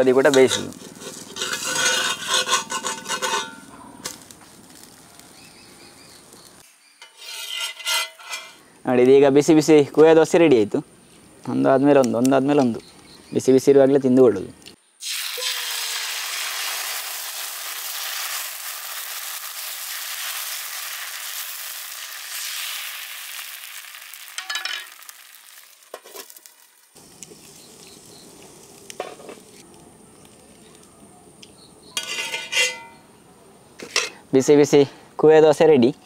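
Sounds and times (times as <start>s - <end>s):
batter sizzling on a hot griddle: 15.0s - 29.6s.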